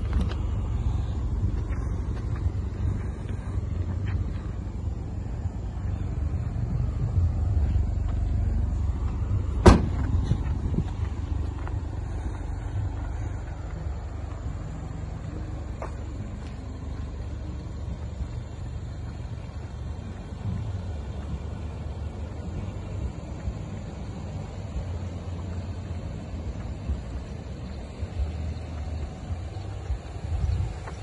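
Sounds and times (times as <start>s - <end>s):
car engine idling: 0.0s - 31.0s
car boot lid slamming: 9.6s - 10.1s.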